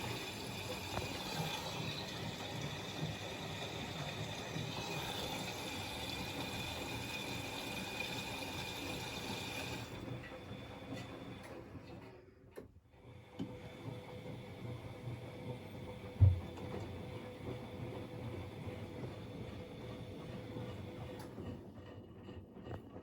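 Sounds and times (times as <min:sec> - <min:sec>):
water running: 0:00.0 - 0:10.2.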